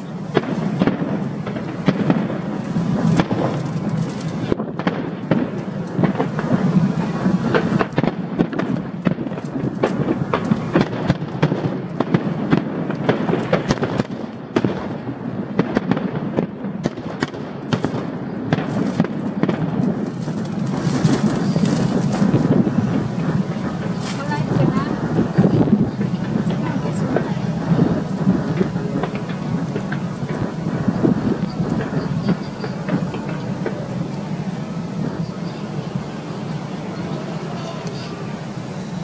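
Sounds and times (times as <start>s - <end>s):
steady rumble: 0.0s - 13.5s, 18.8s - 39.0s
fireworks bangs and crackles: 0.0s - 39.0s.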